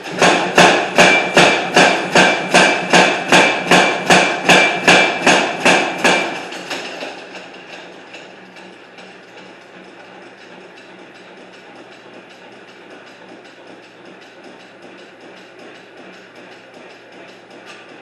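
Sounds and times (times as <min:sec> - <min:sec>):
hammer striking hot iron: 0:00.0 - 0:07.9.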